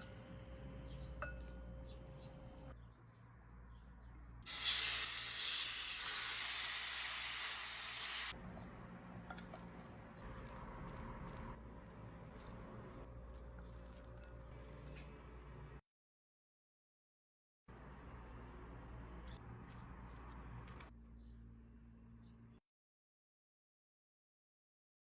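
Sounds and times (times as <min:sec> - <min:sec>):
food sizzling in hot pan: 0:04.5 - 0:08.4.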